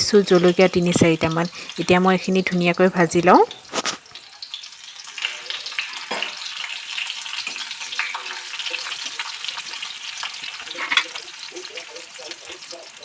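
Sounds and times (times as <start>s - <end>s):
garlic sizzling in hot oil: 0.0s - 13.0s
spatula scraping a pan: 7.3s - 11.5s.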